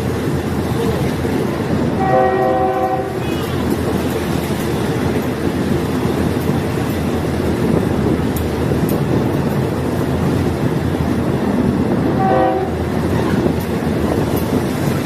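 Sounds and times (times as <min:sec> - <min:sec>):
railcar engine running: 0:00.0 - 0:15.0
train horn: 0:01.9 - 0:03.7, 0:12.1 - 0:13.0.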